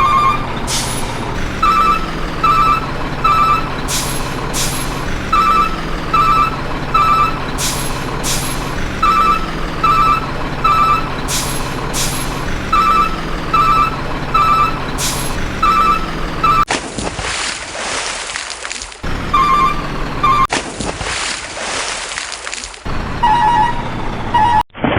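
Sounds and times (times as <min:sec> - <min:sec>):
diesel engine rumble: 0:00.0 - 0:16.7, 0:19.0 - 0:20.5, 0:22.8 - 0:24.7
truck reversing alarm beeping: 0:00.0 - 0:16.7, 0:19.0 - 0:20.5, 0:22.9 - 0:24.6
air-brake hisses: 0:03.9 - 0:05.1, 0:07.6 - 0:08.8, 0:11.3 - 0:12.5, 0:15.0 - 0:15.4.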